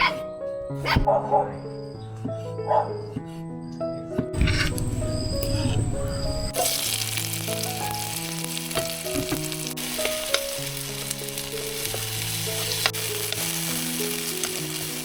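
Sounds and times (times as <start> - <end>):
soft background music: 0.0 - 15.0
food sizzling in a pan: 6.2 - 15.0
stirring clicks: 8.7 - 15.0.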